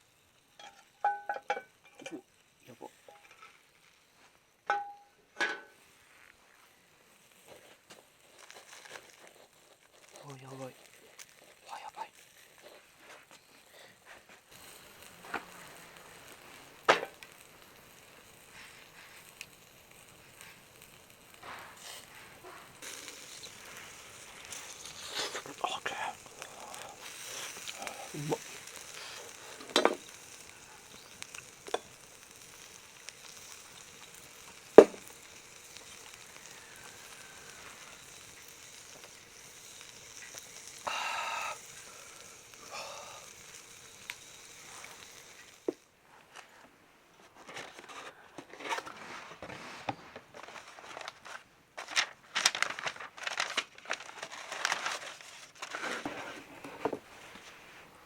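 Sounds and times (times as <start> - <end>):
meat sizzling on a grill: 0.0 - 46.0, 54.4 - 58.0
crinkling and crunching: 5.7 - 40.8, 43.3 - 57.9
sharp clicks and pops: 18.5 - 45.9.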